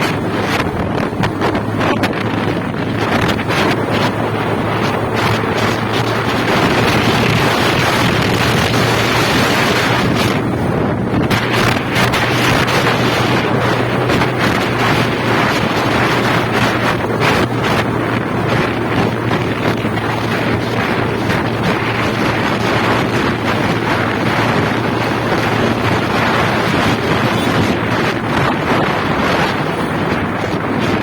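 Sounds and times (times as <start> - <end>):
motorcycle engine humming: 0.0 - 31.0
wind buffeting microphone: 0.0 - 31.0.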